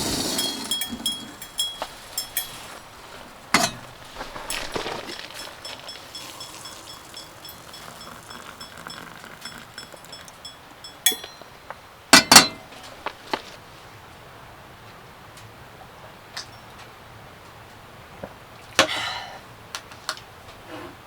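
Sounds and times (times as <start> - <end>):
clink: 0.4 - 12.7.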